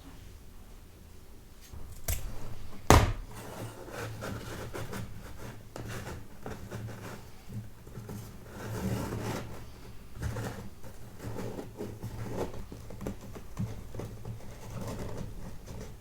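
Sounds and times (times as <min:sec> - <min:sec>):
sharp knock: 0:02.9 - 0:03.4.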